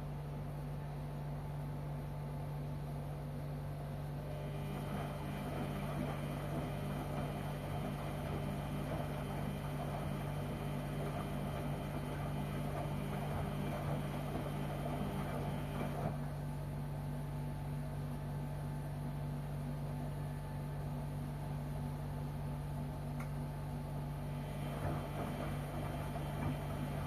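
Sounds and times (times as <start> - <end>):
washing machine motor hum: 0.0 - 27.0
washing machine churning: 3.2 - 19.4, 20.7 - 27.0.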